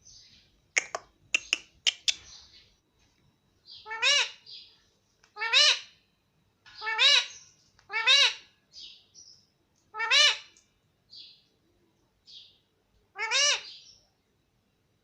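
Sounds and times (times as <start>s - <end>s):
parakeet chirping and calling: 3.7s - 4.7s, 5.4s - 5.9s, 6.7s - 9.0s, 10.0s - 10.5s, 13.2s - 13.9s.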